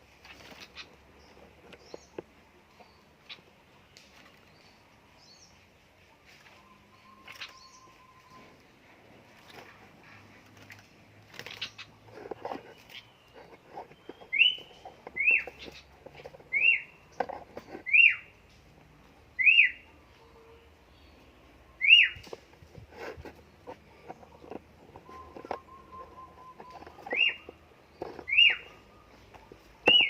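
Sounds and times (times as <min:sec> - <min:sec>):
rustling: 0:08.3 - 0:18.8, 0:22.0 - 0:30.0
bird whistled calls: 0:14.0 - 0:15.5, 0:16.5 - 0:17.0, 0:19.4 - 0:19.8, 0:21.8 - 0:22.3, 0:25.0 - 0:27.5, 0:28.3 - 0:28.8.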